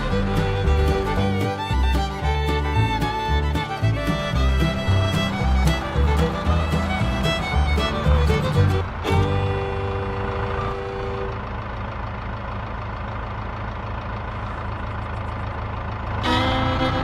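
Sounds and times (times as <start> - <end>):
music: 0.0 - 11.1, 16.2 - 17.0
model vehicle engine running: 0.0 - 17.0.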